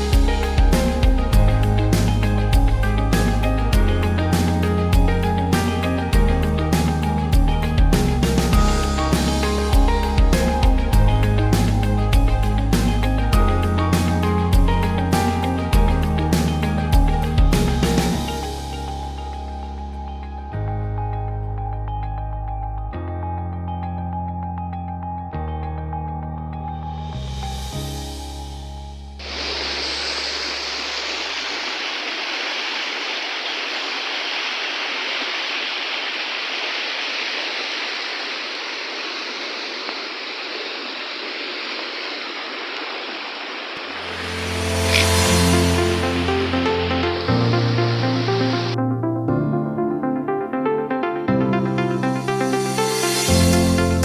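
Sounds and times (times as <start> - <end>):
waterfall rushing: 0.0 - 20.0, 29.2 - 48.8
held bass chords: 0.0 - 25.2, 44.1 - 54.0
synthesizer melody: 0.0 - 27.2, 43.8 - 54.0
background music: 0.0 - 29.5, 43.8 - 54.0
hiss: 29.2 - 46.8.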